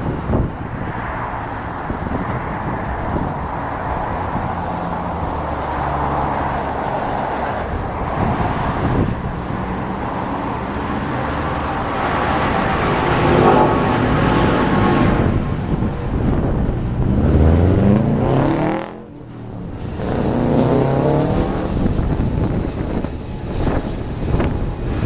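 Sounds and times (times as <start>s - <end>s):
jet engines at takeoff thrust: 0.0s - 25.0s.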